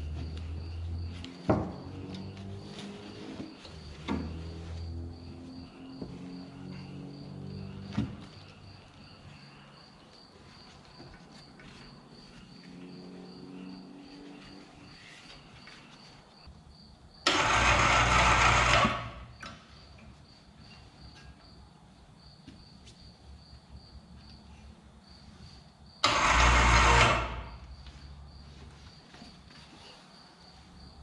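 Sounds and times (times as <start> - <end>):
insects chirping: 0.0 - 17.3, 19.2 - 26.0.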